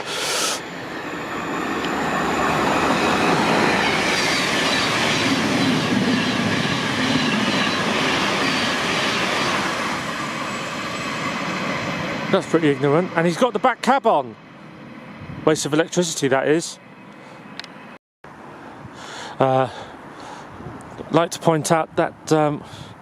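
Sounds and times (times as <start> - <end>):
train rolling past on rails: 0.0 - 18.0.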